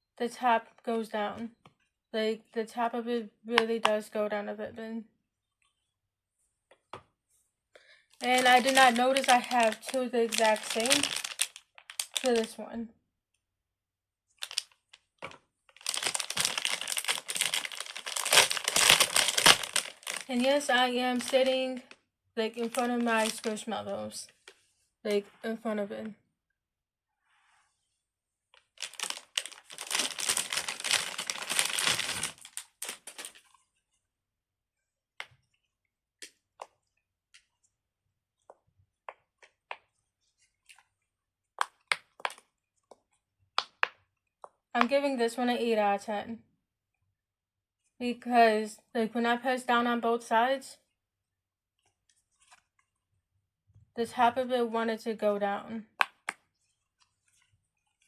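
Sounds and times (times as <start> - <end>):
crinkling and rustling: 8.2 - 12.6, 14.4 - 24.8, 28.5 - 34.0, 38.4 - 43.2, 51.8 - 53.0, 56.1 - 58.0.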